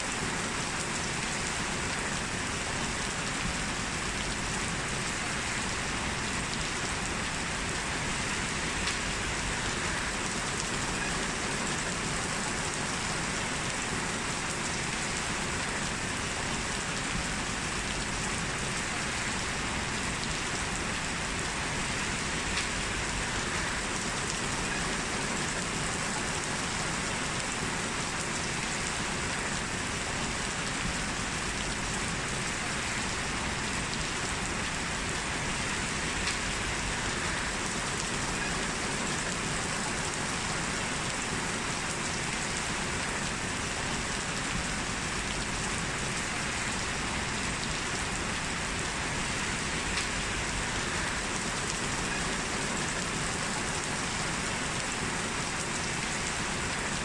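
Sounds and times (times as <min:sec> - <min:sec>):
heavy rain hiss: 0:00.0 - 0:57.0
raindrop ticks: 0:08.8 - 0:09.2, 0:22.5 - 0:22.8, 0:36.2 - 0:36.6, 0:49.9 - 0:50.2.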